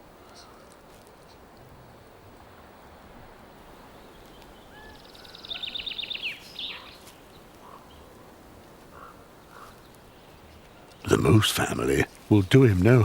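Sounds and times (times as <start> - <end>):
faint outdoor background hiss: 0.0 - 13.0
songbird singing: 3.5 - 13.0.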